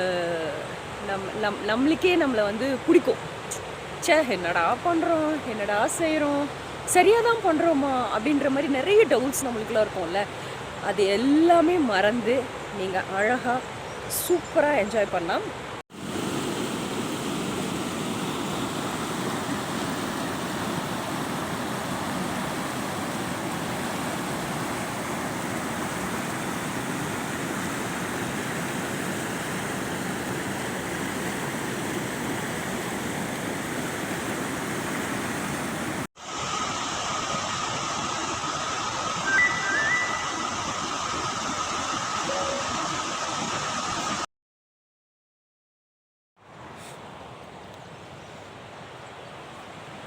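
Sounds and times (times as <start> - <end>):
river water rushing: 15.9 - 44.2
brief high tone: 39.2 - 40.8, 42.2 - 42.8.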